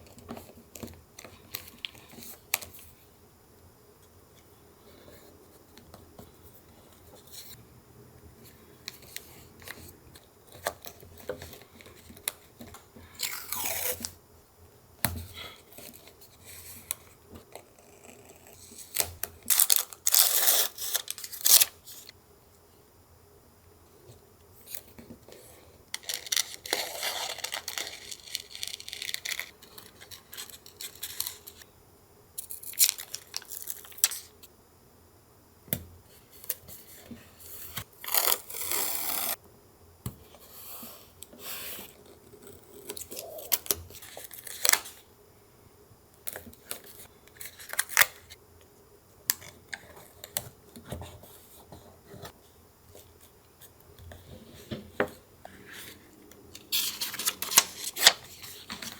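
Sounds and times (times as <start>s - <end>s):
paper rustling and tearing: 56.6s - 58.9s.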